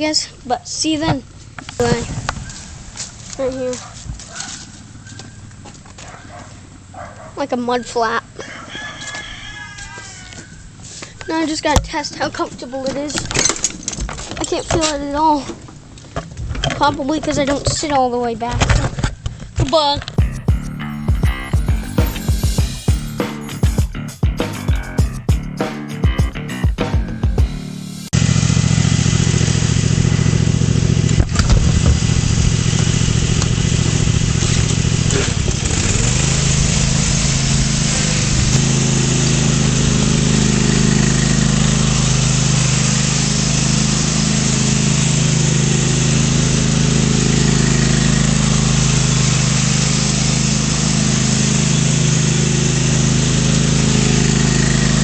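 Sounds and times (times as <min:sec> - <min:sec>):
lawn tractor engine running: 0:33.0 - 0:55.0.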